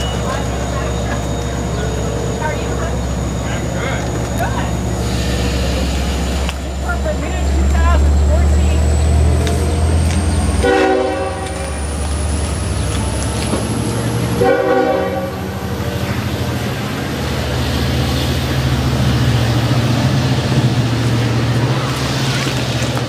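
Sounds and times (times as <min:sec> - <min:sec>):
train rumbling: 0:00.0 - 0:23.0
train horn blasts: 0:10.6 - 0:11.8, 0:14.4 - 0:15.6.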